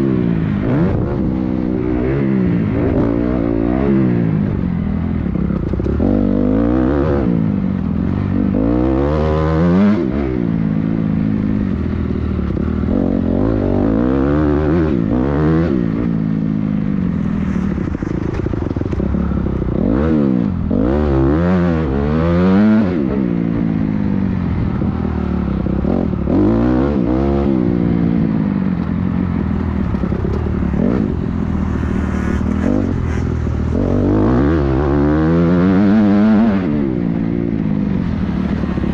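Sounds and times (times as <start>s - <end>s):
motocross bike engine revving: 29.8s - 38.9s.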